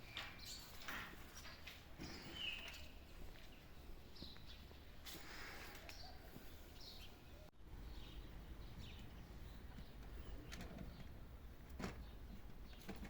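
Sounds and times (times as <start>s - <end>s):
faint bird chirps: 2.0s - 4.7s.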